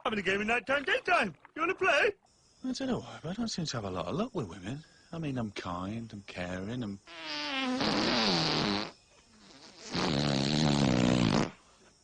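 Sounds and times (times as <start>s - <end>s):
rasping fart-like blasts: 7.1s - 11.7s.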